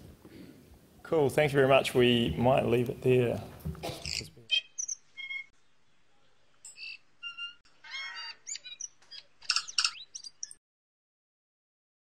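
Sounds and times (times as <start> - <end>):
bird chirps and whistles: 4.1 - 5.5, 6.7 - 10.6.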